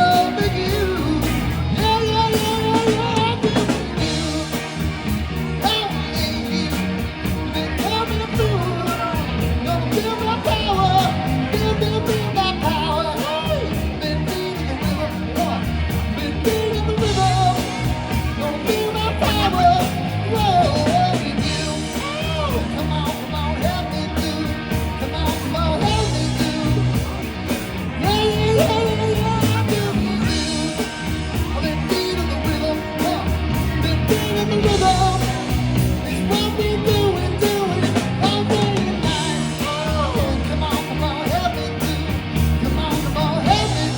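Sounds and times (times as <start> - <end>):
lead singer vocals: 0.0 - 43.9
rock band playing: 0.0 - 43.9.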